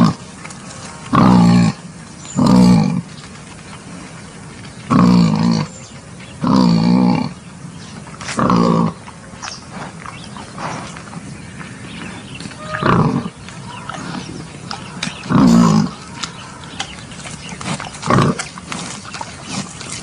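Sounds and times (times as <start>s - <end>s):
wild boar grunting: 0.0s - 3.2s, 4.7s - 7.5s, 8.1s - 20.0s
rustling: 12.4s - 20.0s.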